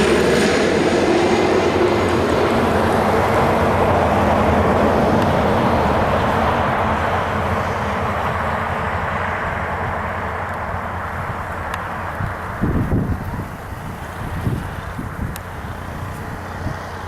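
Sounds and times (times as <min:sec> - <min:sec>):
jet engine roar passing: 0:00.0 - 0:17.0.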